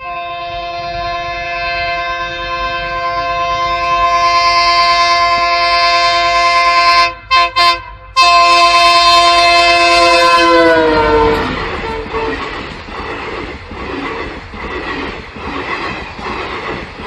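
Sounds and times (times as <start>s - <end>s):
train horn blowing: 0.0s - 12.6s.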